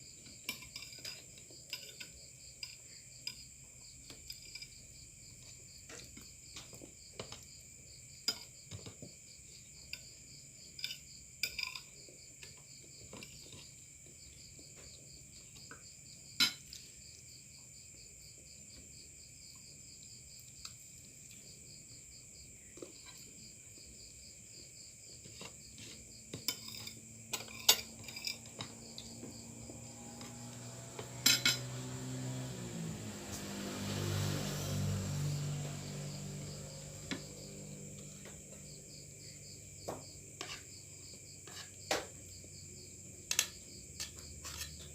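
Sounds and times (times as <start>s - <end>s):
crickets chirping: 0.0s - 44.9s
cutlery clinking on a plate: 10.8s - 12.0s, 26.4s - 28.7s.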